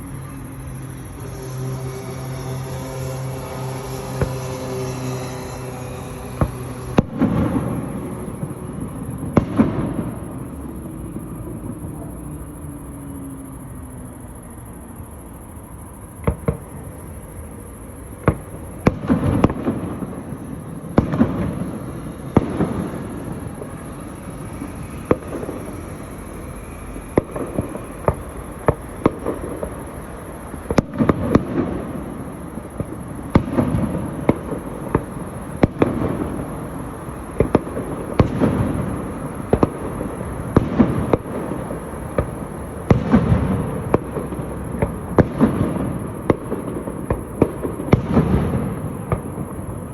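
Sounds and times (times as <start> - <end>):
firework bangs: 0.0 - 14.6, 15.6 - 49.9
firework crackle: 0.0 - 49.9
rumbling firework booms: 3.8 - 12.6, 37.3 - 49.9.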